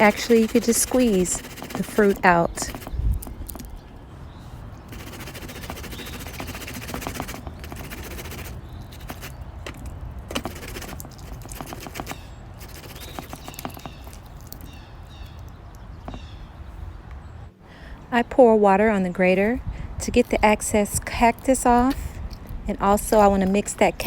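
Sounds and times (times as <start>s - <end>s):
cactus rasping on hand grater: 0.0s - 3.0s, 4.9s - 14.2s.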